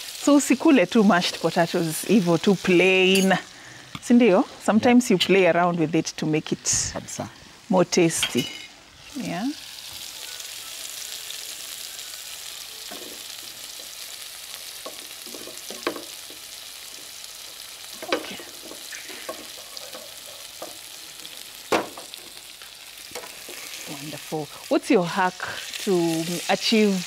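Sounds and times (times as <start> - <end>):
chicken sizzling in a frying pan: 0.0 - 27.0
spatula knocking and scraping pan: 14.8 - 17.2, 18.0 - 20.9.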